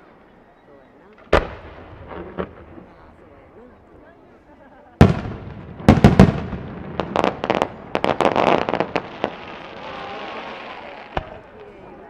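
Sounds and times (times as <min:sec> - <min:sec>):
fireworks crackling and popping: 0:01.2 - 0:03.7, 0:05.0 - 0:12.0
fireworks booming: 0:01.2 - 0:04.0, 0:05.0 - 0:11.8.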